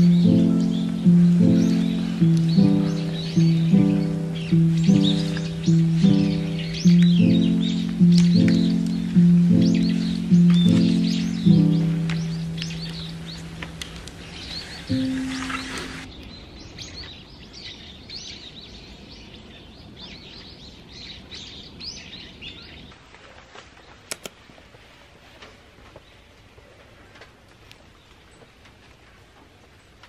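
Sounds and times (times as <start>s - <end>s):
steady background hiss: 0.0s - 16.9s
birds chirping: 0.0s - 22.9s
sharp click: 24.1s - 24.4s.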